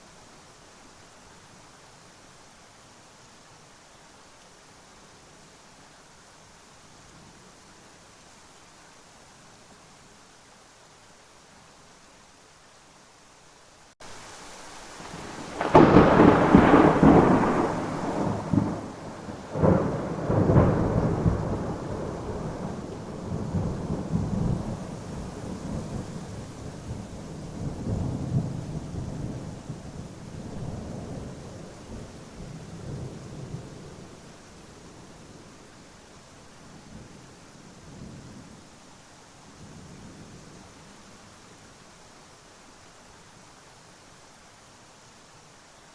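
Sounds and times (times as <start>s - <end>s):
rain: 0.0s - 45.9s
rolling thunder: 15.0s - 34.1s
thunderclap: 15.1s - 26.0s.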